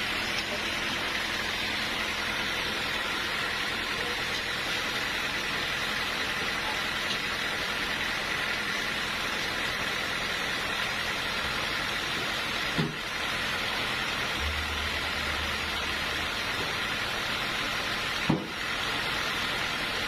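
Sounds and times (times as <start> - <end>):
sawmill machinery running: 0.0 - 20.0
low hum: 14.0 - 17.6.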